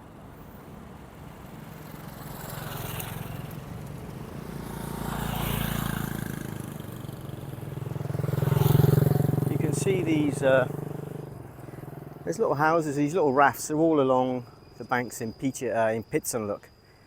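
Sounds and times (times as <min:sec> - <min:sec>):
diesel train engine humming: 0:09.4 - 0:12.6.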